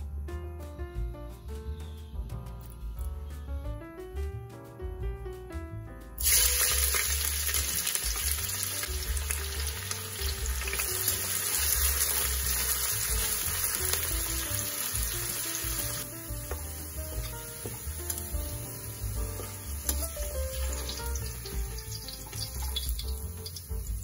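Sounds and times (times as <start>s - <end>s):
onions sizzling in hot oil: 6.2s - 24.0s.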